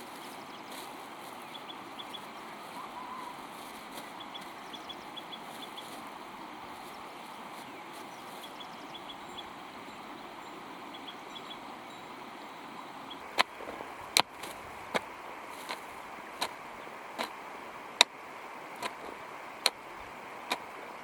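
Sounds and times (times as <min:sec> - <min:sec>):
faint high chirps: 0:00.0 - 0:13.3
rural background: 0:00.0 - 0:21.0.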